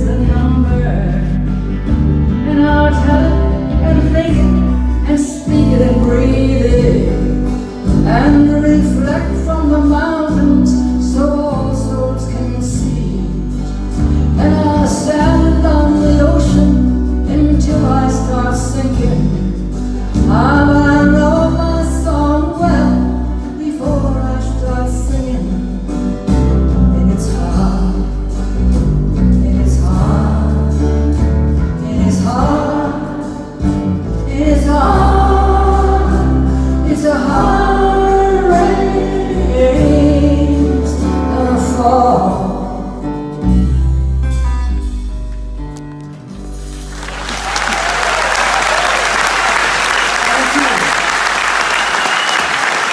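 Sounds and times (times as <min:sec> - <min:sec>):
people singing: 0:29.4 - 0:31.2, 0:31.8 - 0:42.7.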